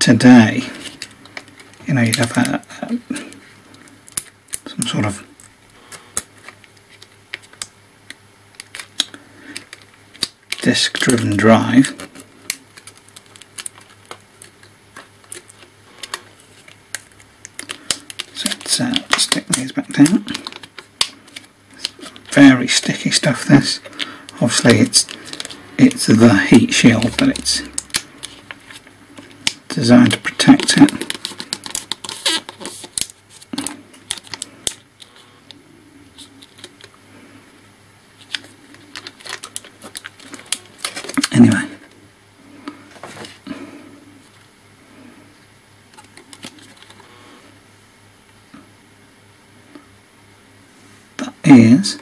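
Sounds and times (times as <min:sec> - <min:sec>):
faint steady low hum: 0:00.0 - 0:52.0
hands rustling laptop parts: 0:00.6 - 0:04.4, 0:05.4 - 0:22.4, 0:23.7 - 0:37.1, 0:38.2 - 0:41.4, 0:45.9 - 0:47.2.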